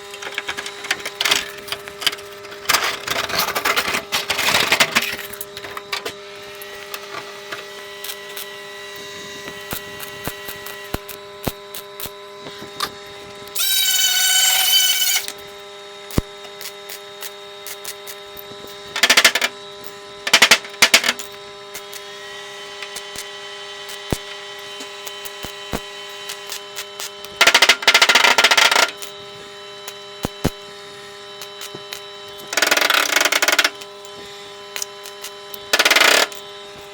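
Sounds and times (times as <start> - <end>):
electrical hum: 0.0 - 36.9
power tool whine: 0.0 - 36.9
loud noisy bursts: 13.6 - 15.4.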